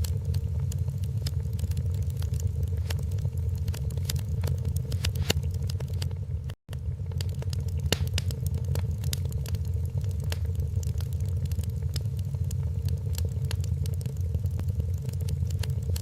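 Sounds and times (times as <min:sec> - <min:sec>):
wood fire crackling in a fireplace: 0:00.0 - 0:16.0.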